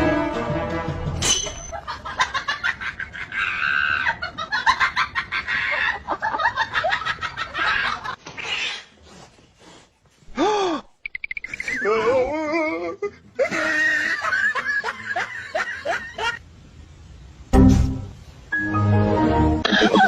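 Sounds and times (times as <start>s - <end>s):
birds calling: 11.1s - 12.0s.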